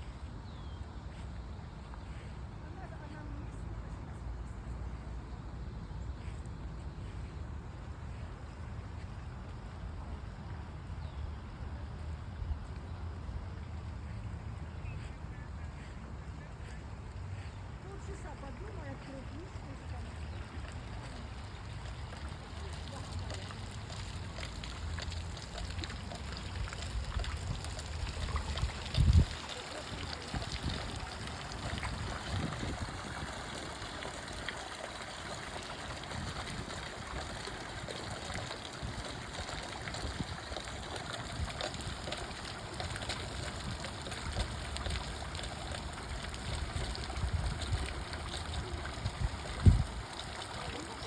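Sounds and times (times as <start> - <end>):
stream water trickling: 12.4 - 51.0.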